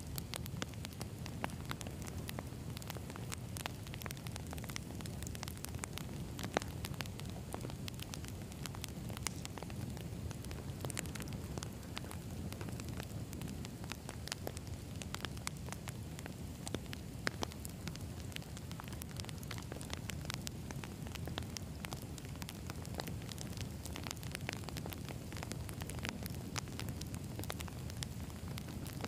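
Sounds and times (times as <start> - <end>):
campfire crackling and popping: 0.0 - 29.0.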